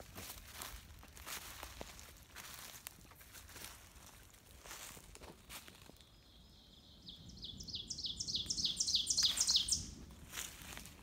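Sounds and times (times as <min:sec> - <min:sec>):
footsteps crunching dry leaves: 0:00.0 - 0:06.1, 0:09.2 - 0:11.0
songbird singing: 0:05.8 - 0:10.1.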